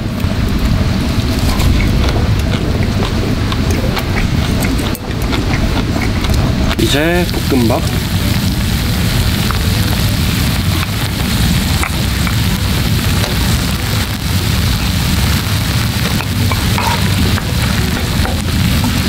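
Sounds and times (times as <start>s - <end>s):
heavy low rumble: 0.0s - 19.0s
rain: 0.0s - 19.0s
wind: 0.0s - 19.0s.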